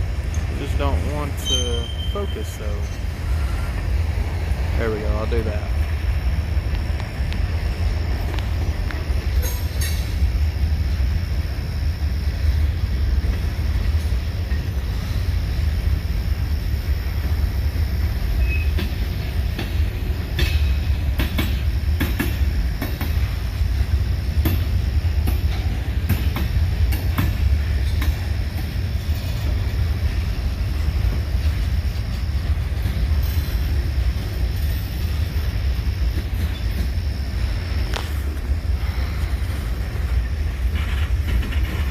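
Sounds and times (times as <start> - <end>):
freight train rumbling past: 0.0 - 41.9
wheels clacking over rail joints: 18.4 - 23.3, 24.3 - 35.5, 39.8 - 41.9.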